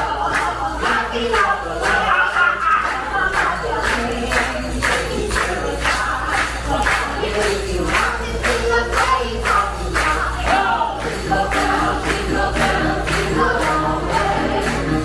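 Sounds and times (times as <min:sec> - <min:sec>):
group singing with instruments: 0:00.0 - 0:15.0
tambourine beat: 0:00.0 - 0:15.0.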